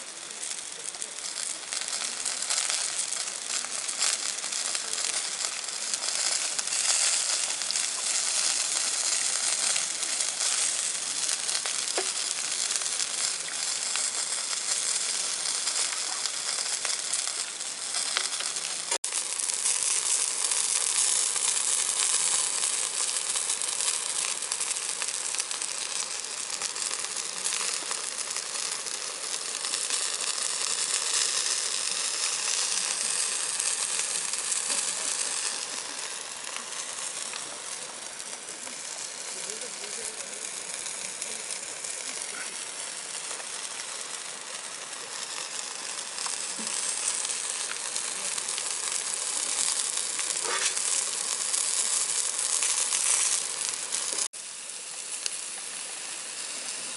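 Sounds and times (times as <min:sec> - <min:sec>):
food sizzling in a pan: 0:00.0 - 0:56.9.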